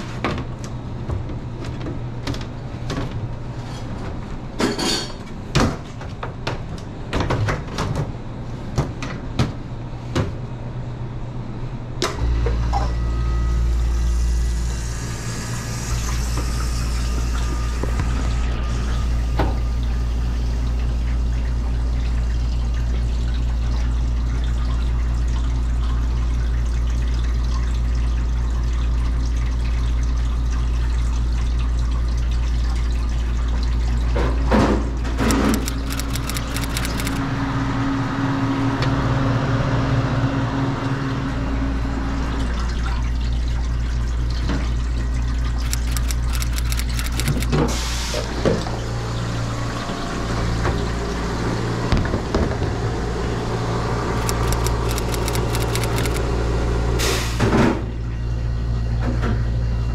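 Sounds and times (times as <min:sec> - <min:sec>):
ice machine compressor hum: 0:00.0 - 0:39.1, 0:40.5 - 0:59.9
condenser fan tone: 0:00.0 - 0:59.9
water circulating and splashing: 0:14.9 - 0:37.2
sharp clicks and knocks: 0:35.2 - 0:37.2, 0:45.6 - 0:47.5, 0:54.2 - 0:56.2.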